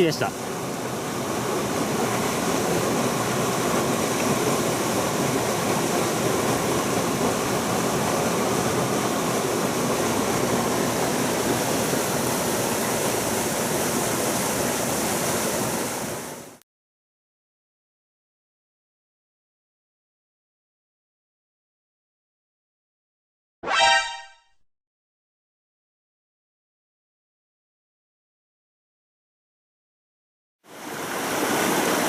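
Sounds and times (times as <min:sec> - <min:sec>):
stream water rushing over rocks: 0:00.0 - 0:16.6, 0:30.7 - 0:32.0.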